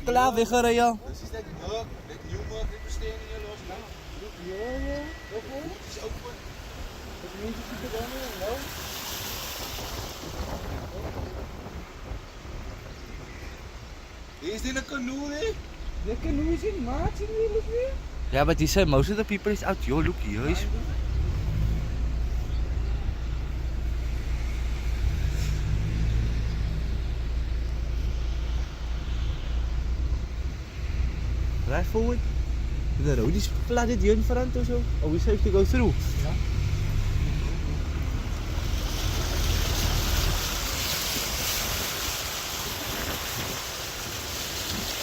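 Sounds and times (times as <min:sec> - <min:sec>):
car engine and road rumble: 0:00.0 - 0:45.0
brief hiss: 0:24.4 - 0:26.2.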